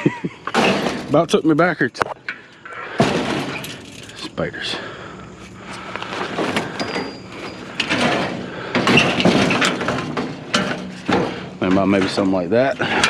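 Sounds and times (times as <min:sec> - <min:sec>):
scrap pieces clattering and scraping: 0:05.7 - 0:12.2.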